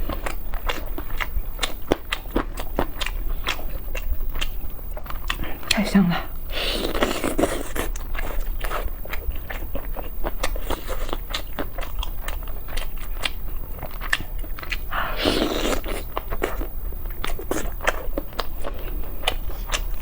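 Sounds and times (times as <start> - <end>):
person chewing crunchy food: 0.0 - 20.0.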